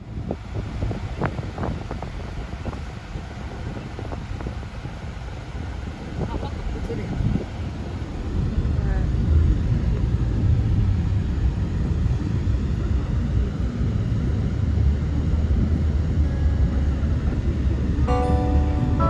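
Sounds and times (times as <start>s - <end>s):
low rumble: 8.2s - 19.0s
acoustic guitar music: 16.2s - 19.0s.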